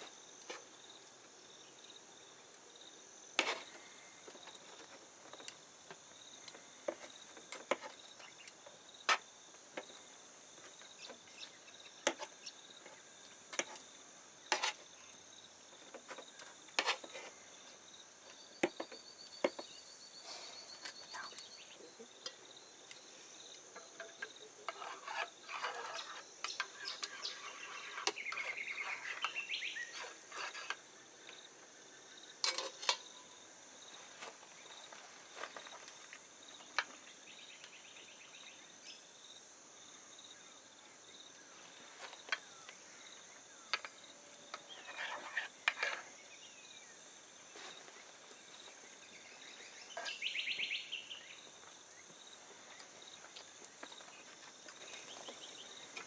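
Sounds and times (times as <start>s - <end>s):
insect chirring: 0.0s - 56.0s
utensils and dishes clinking: 32.4s - 33.1s.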